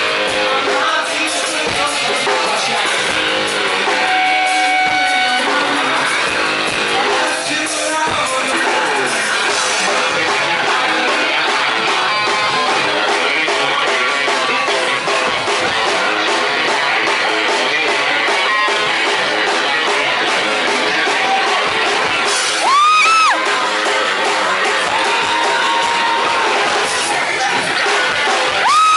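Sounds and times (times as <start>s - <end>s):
rock band playing: 0.0s - 28.9s
electric guitar swooping note: 3.2s - 6.9s.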